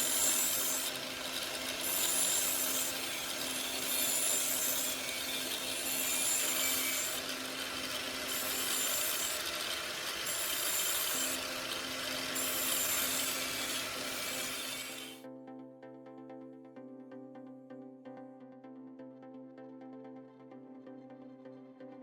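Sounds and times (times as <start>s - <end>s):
angle grinder humming: 0.0s - 15.2s
knife grinding on disc: 0.0s - 15.2s.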